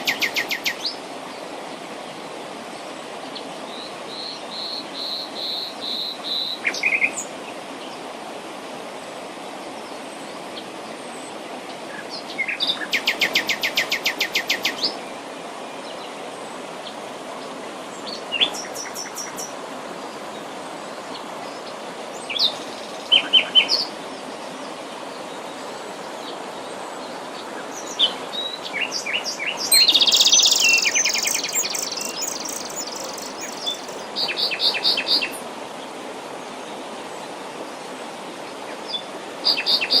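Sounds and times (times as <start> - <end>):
wild birds singing and chirping: 0.0 - 1.4, 9.8 - 35.4.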